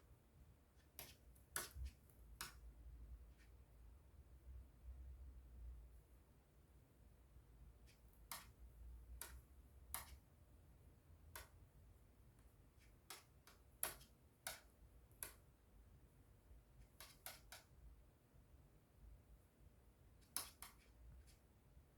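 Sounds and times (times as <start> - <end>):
faint sharp clicks: 7.9 - 8.6, 9.2 - 10.2, 12.8 - 15.4, 16.9 - 17.7, 20.2 - 21.4.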